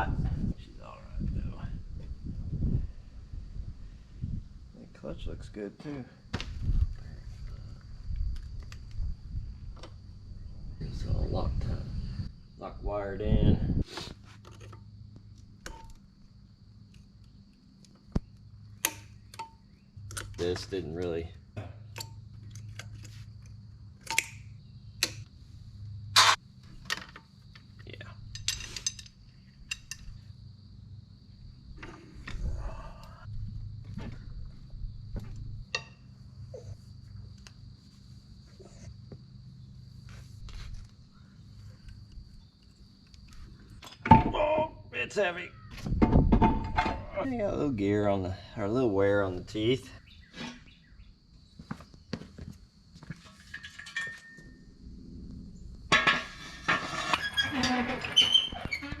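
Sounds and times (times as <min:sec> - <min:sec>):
constant high-pitched tone: 0:14.5 - 0:59.0
metallic ring: 0:53.5 - 0:54.7.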